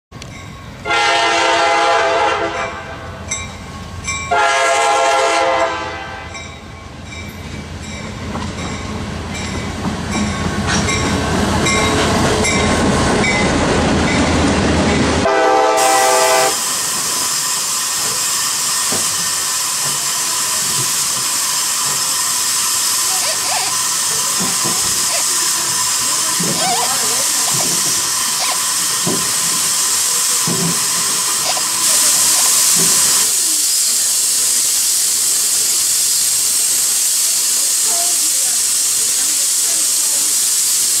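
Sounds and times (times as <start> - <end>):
locomotive air horn: 0.9 - 3.2, 4.3 - 6.3, 15.2 - 16.6
steam hiss: 15.2 - 41.0
wheels clicking over rail joints: 16.6 - 31.9.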